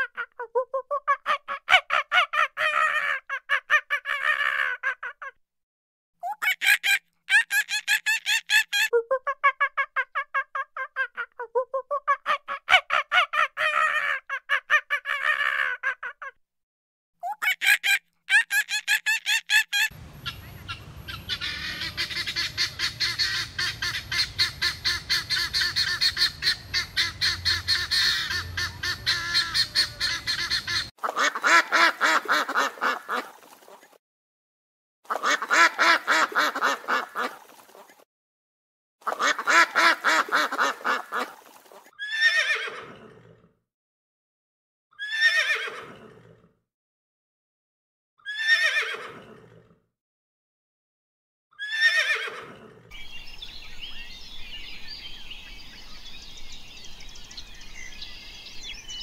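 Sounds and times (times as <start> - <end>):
geese honking: 20.2 - 33.2.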